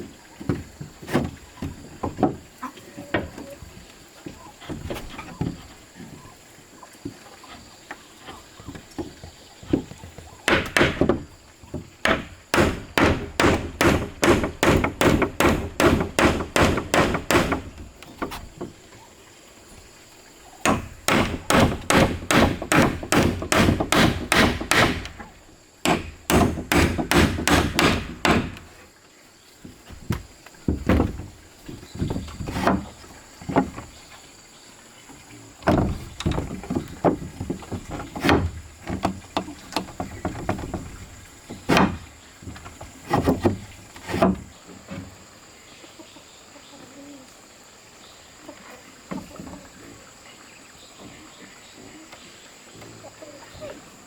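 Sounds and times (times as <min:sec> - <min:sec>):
tool striking wood: 0:10.5 - 0:11.2, 0:12.0 - 0:17.9, 0:20.6 - 0:28.7, 0:41.7 - 0:42.0.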